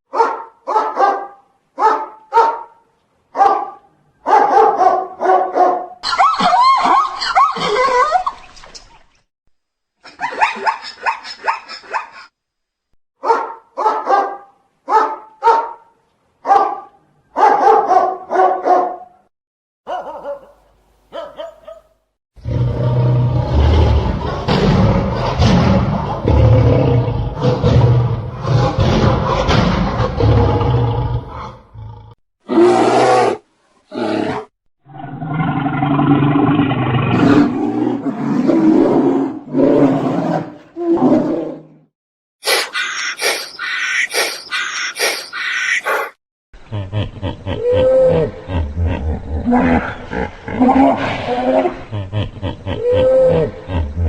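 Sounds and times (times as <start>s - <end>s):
dog barking: 0.1s - 6.0s, 13.2s - 19.2s, 19.9s - 22.0s, 45.8s - 46.2s
deep call of large animal: 46.7s - 54.0s.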